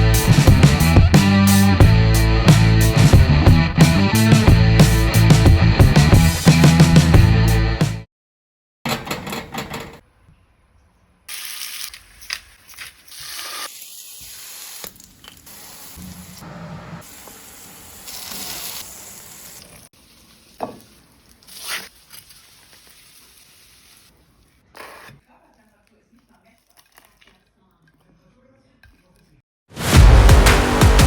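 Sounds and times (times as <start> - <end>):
hissing spray noise: 13.0 - 20.3.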